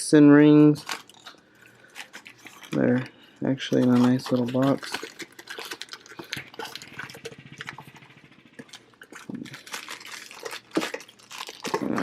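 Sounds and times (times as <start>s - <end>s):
clicks and rustles of small box: 0.8s - 7.9s, 8.6s - 12.0s.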